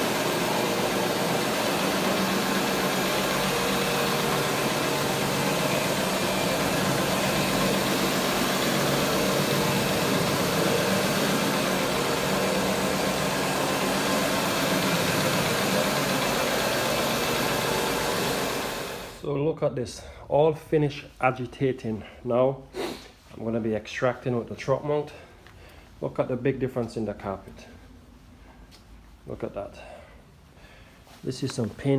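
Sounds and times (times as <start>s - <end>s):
carpet brush machine humming: 0.0s - 19.2s.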